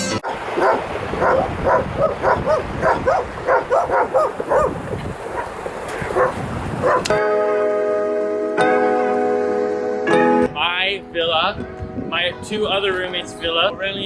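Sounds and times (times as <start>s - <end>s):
small dog yipping and barking: 0.2s - 4.8s, 6.1s - 7.2s.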